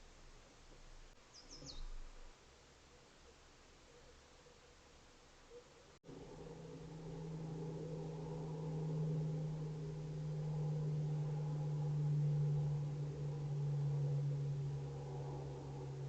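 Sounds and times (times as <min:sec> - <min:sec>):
faint background hiss: 0:00.0 - 0:16.0
low-pitched hum: 0:06.0 - 0:16.0.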